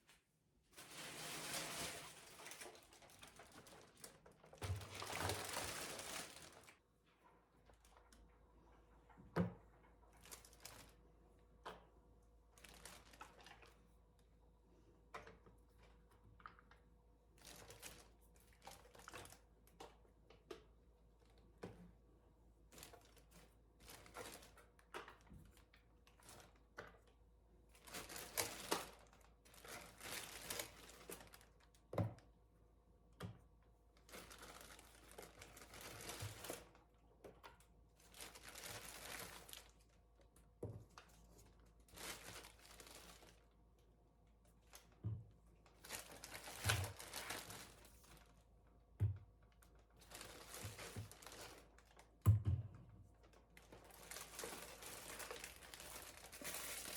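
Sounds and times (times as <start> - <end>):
crinkling rustles: 0.0 - 6.8, 10.1 - 11.0, 12.6 - 13.8, 17.4 - 20.0, 22.7 - 27.2, 27.8 - 31.8, 34.0 - 43.6, 45.6 - 48.5, 49.5 - 52.2, 53.1 - 56.9.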